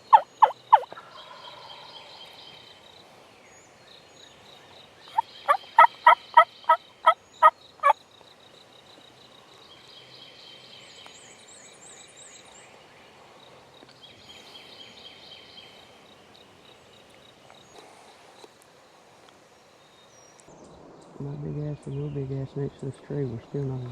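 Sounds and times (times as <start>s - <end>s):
turkey yelps: 0.0s - 1.4s, 5.1s - 7.5s
songbirds trilling: 0.0s - 23.9s.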